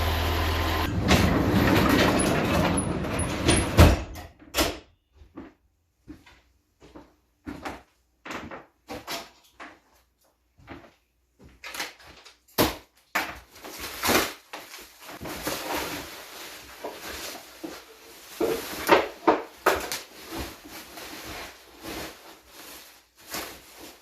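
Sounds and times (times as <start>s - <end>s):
wood scraping and rustling: 0.8s - 3.8s, 13.6s - 24.0s.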